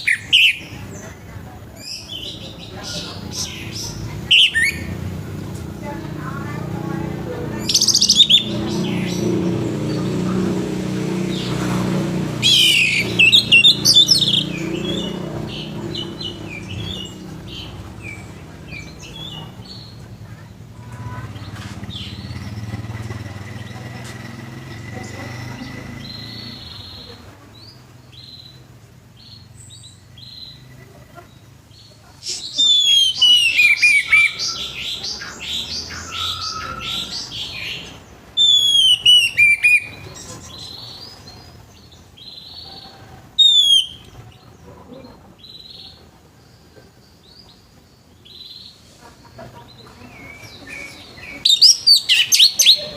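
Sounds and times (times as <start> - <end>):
thrush singing: 0.0 - 27.4, 32.2 - 41.2.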